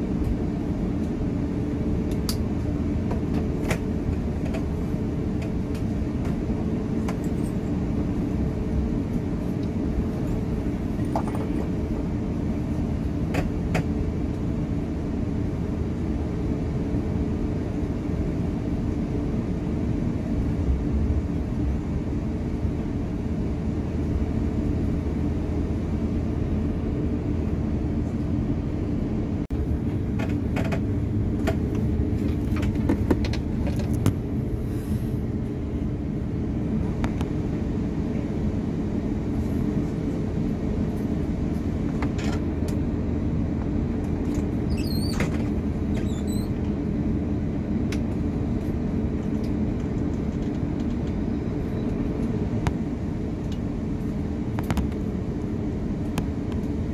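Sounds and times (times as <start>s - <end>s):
jet engine drone in cabin: 0.0s - 56.9s
low hum tones: 0.0s - 56.9s
brief squeaks: 44.7s - 45.3s, 45.9s - 46.6s.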